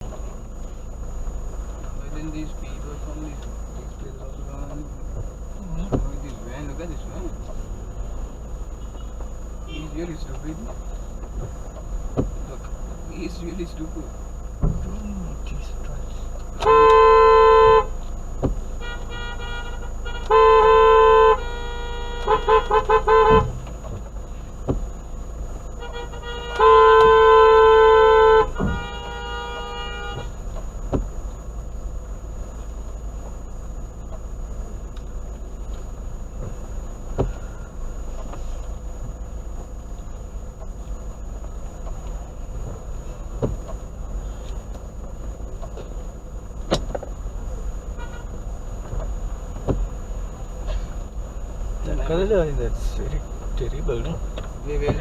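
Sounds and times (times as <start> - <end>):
low hum of traffic: 0.0 - 55.0
car horns honking: 8.2 - 10.8, 12.1 - 31.8, 34.0 - 38.6, 41.2 - 49.0.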